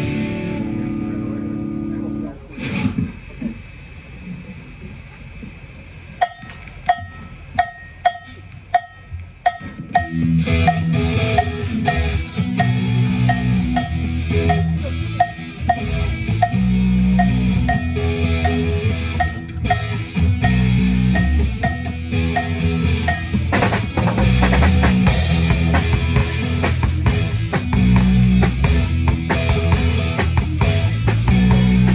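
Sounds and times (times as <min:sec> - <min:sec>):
rock band playing: 0:00.0 - 0:03.1, 0:06.2 - 0:31.9
cowbell strikes: 0:06.2 - 0:24.0
cymbals: 0:06.2 - 0:31.9.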